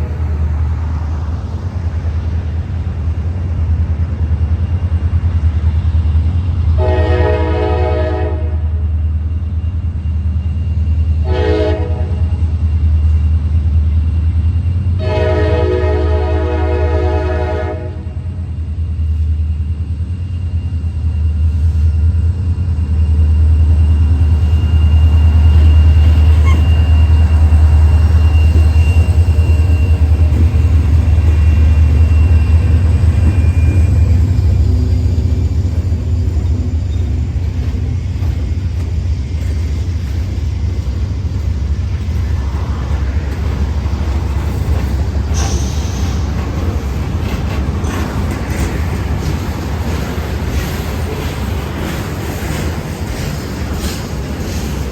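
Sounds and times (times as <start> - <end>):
freight train rumbling past: 0.0 - 54.9.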